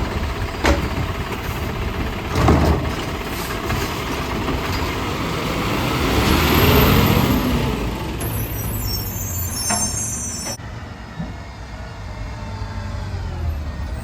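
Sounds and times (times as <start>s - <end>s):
garbage truck diesel engine revving: 0.0s - 10.9s.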